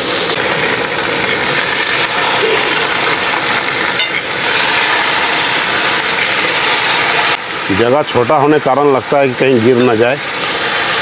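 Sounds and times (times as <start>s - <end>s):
chicken sizzling in hot oil: 0.0s - 11.0s
metal spatula scraping pan: 2.4s - 7.0s.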